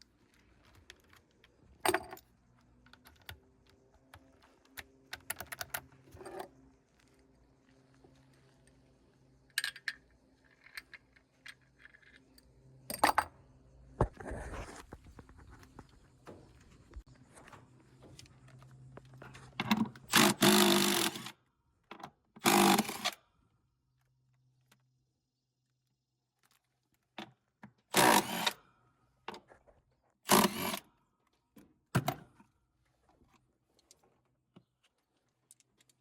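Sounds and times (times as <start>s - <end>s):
power drill bursts: 20.1s - 21.3s, 22.4s - 23.2s, 28.0s - 28.6s, 30.3s - 30.8s.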